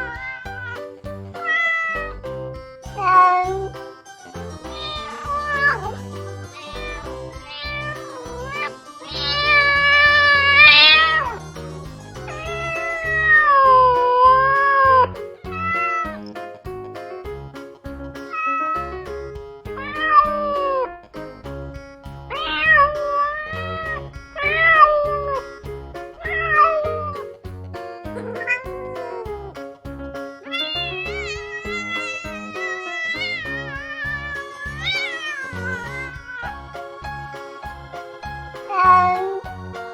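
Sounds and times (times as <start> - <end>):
cat meowing: 0.0 - 2.2, 4.7 - 11.4, 12.3 - 13.9, 15.4 - 16.2, 19.8 - 20.7, 22.3 - 25.1, 26.2 - 27.2, 30.4 - 36.6
music with steady beat: 0.0 - 39.9.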